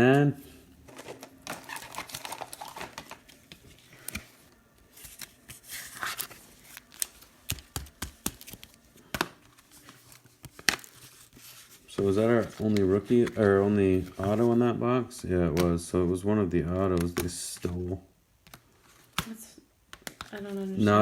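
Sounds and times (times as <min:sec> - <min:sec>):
card packaging crinkling and rustling: 0:00.7 - 0:14.7.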